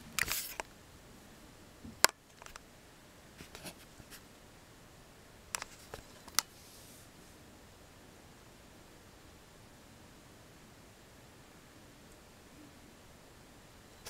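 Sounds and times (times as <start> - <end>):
sharp clicks: 5.5 - 6.5.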